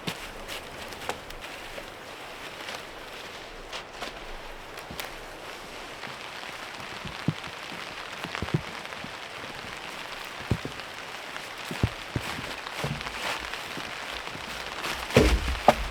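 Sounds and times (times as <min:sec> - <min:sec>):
steady rain patter: 0:00.0 - 0:15.9
heavy raindrops knocking: 0:06.0 - 0:15.9.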